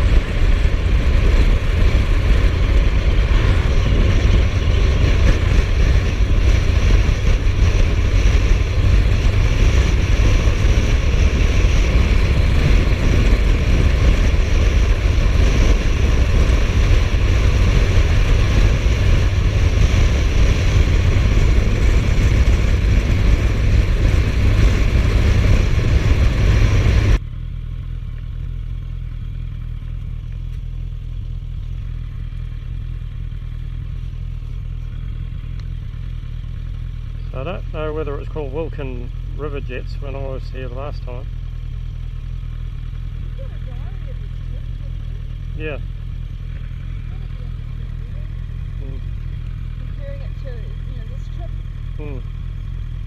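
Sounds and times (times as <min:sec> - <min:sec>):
wind rush: 0:00.0 - 0:27.2
low hum: 0:00.0 - 0:53.0
motorcycle engine drone: 0:00.0 - 0:53.0.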